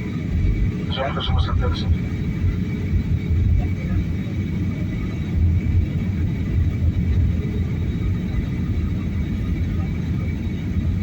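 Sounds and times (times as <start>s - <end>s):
airliner cabin engine rumble: 0.0s - 11.0s.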